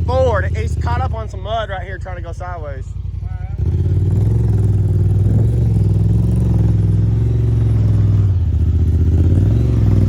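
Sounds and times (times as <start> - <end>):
engine running at high revs: 3.1 - 10.0.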